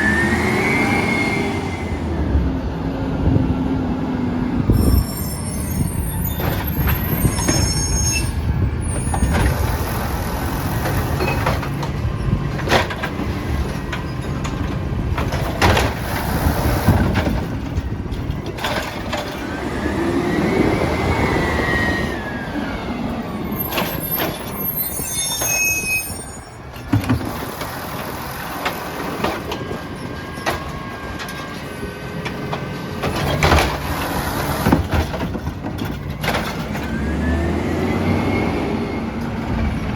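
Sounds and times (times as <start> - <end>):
high squeals: 0.0 - 2.2, 4.7 - 10.1, 20.4 - 26.8
trash truck running: 0.0 - 39.9.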